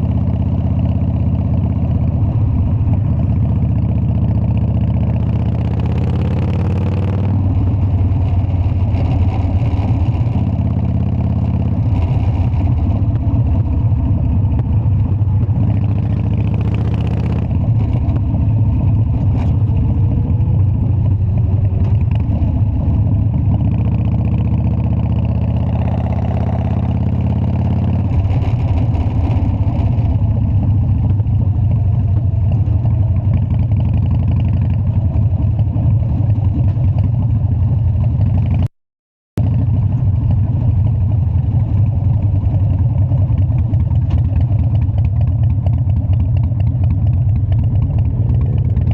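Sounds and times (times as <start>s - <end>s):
motorcycle engine pulsing: 39.4s - 48.9s.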